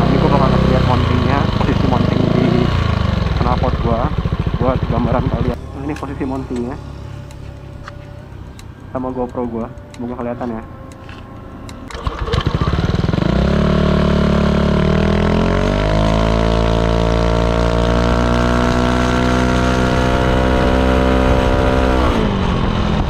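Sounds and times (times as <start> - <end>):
scooter engine revving: 0.0 - 9.0, 11.9 - 23.0.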